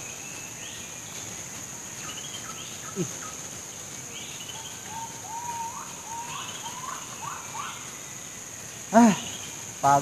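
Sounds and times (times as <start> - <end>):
high insect drone: 0.0 - 10.0
short rising bird calls: 4.5 - 7.8.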